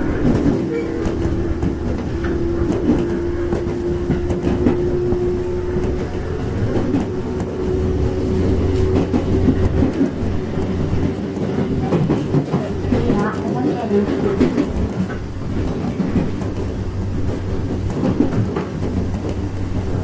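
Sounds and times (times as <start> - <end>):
steady drone-like tone: 0.0 - 11.9
rail-joint clicks: 0.0 - 20.0
train wheels rumbling on rail: 0.0 - 20.0.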